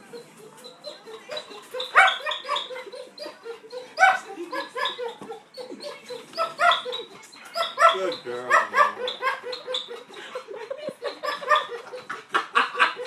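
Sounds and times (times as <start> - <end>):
dog whining and yelping: 0.0 - 10.1.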